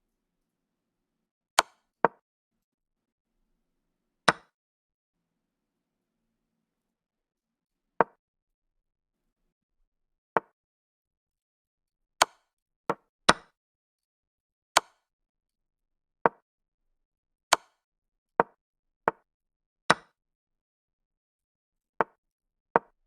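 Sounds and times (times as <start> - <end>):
wooden chess piece clicks: 14.8 - 15.0, 18.4 - 19.2.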